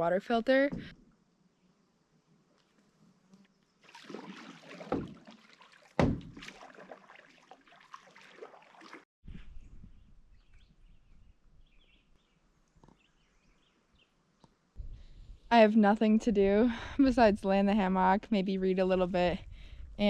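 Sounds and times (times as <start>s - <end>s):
water splashing and sloshing: 3.8s - 9.1s
knocks against boat: 6.0s - 6.5s.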